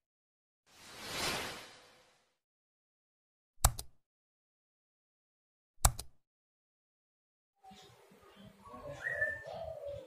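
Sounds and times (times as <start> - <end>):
faint bird chirps: 7.6 - 10.0
faint outdoor background: 7.6 - 10.0.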